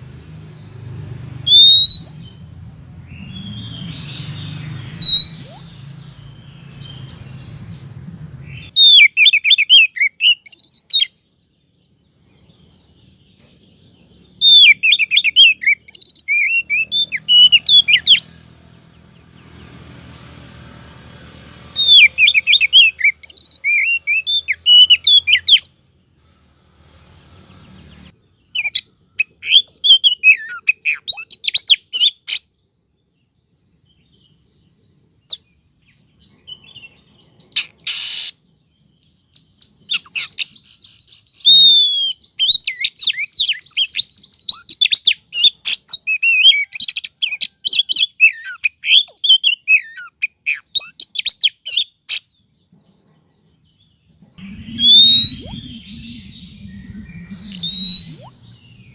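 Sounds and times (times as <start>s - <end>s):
bird chirping and whistling: 1.4s - 7.8s, 8.4s - 11.1s, 14.1s - 18.4s, 21.7s - 25.7s, 26.9s - 32.2s, 37.5s - 38.4s, 39.4s - 51.9s, 54.3s - 58.9s.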